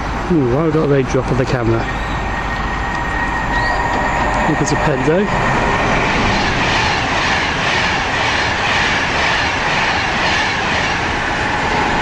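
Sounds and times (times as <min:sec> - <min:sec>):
electric train passing: 0:00.0 - 0:12.0.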